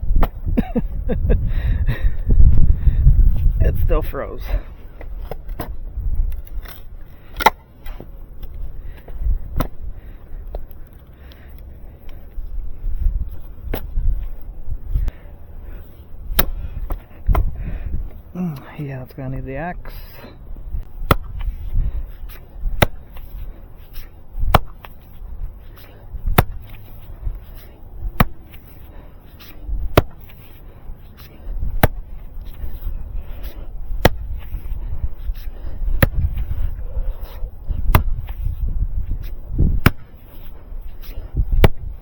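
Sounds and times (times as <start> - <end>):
pick axe striking frozen ground: 0.2 - 0.4, 5.2 - 8.5, 9.5 - 9.8, 13.6 - 14.0, 16.3 - 17.6, 21.0 - 21.6, 22.3 - 23.3, 24.0 - 25.0, 25.8 - 26.8, 27.5 - 28.8, 29.4 - 30.4, 31.5 - 32.7, 33.4 - 34.7, 35.3 - 36.6, 37.2 - 38.6, 39.2 - 40.2, 41.0 - 42.0.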